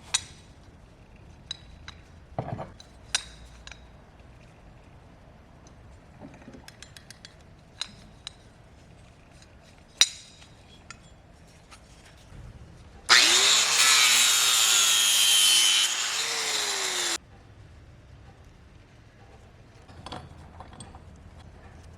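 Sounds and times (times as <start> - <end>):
power tool grinding metal: 13.1 - 17.2.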